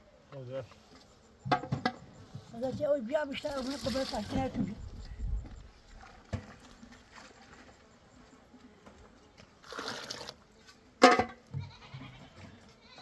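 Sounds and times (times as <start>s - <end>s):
goat bleating: 11.6s - 13.0s.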